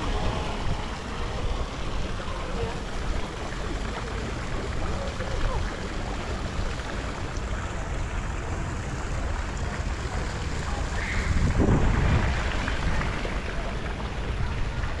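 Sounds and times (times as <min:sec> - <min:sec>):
wind buffeting microphone: 0:09.9 - 0:15.0.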